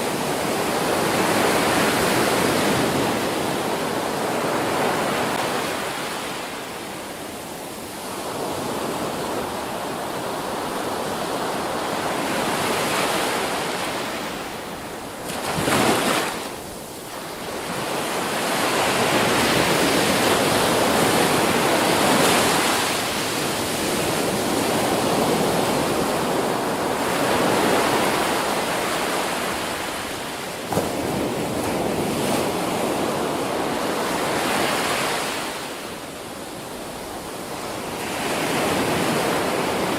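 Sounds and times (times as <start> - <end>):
ocean waves breaking: 8.2 - 36.0.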